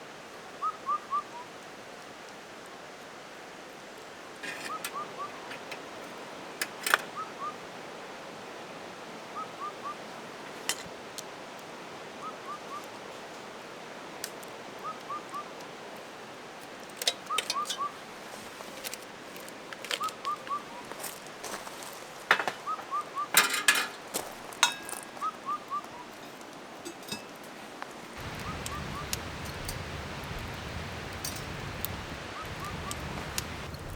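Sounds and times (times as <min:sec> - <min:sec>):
campfire crackling and popping: 0:14.1 - 0:15.4, 0:27.2 - 0:33.9.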